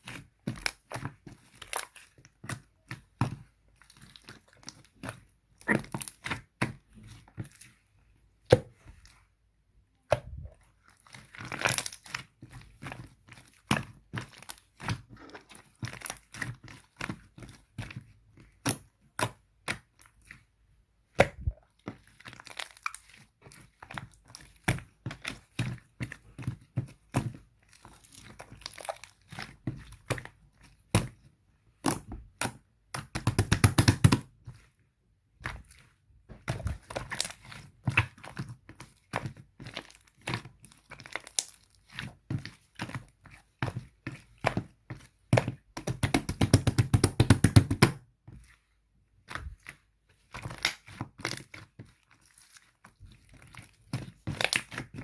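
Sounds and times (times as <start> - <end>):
slime squishing and crackling: 0.0 - 9.3, 9.9 - 55.0.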